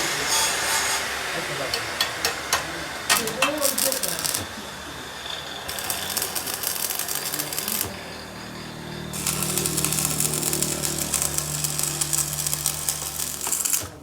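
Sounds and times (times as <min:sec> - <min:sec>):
steady motor hum: 0:00.0 - 0:14.0
machinery rattling clatter: 0:05.2 - 0:14.0.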